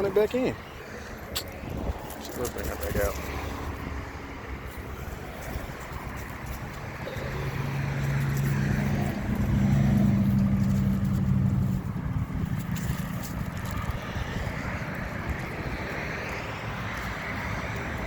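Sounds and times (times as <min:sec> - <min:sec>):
motor engine droning: 0:07.0 - 0:14.6.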